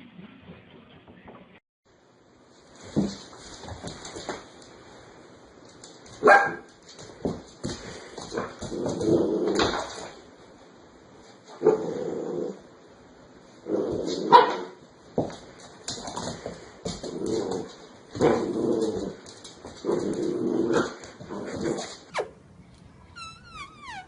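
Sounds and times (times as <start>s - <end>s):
dog barking and whining: 23.2s - 24.0s.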